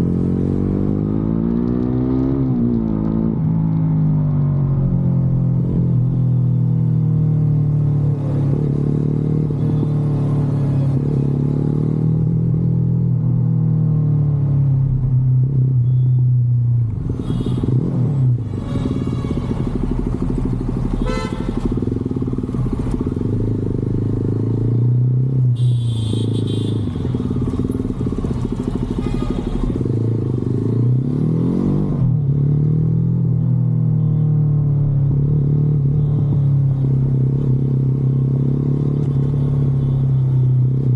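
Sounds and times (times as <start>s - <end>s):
motorcycle engine revving: 0.0s - 3.7s, 17.0s - 34.0s.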